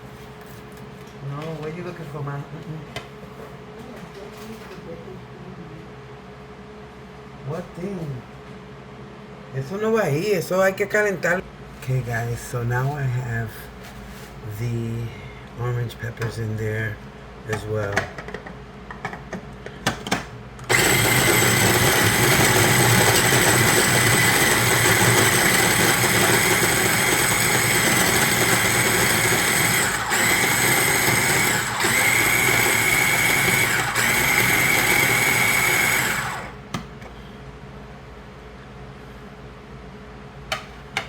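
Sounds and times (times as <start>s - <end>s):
electric food chopper running: 20.7s - 36.6s.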